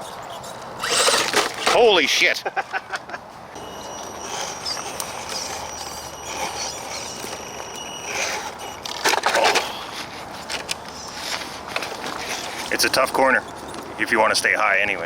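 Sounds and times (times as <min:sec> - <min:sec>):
toy truck electric motor whining: 0:00.0 - 0:02.2, 0:03.6 - 0:14.1.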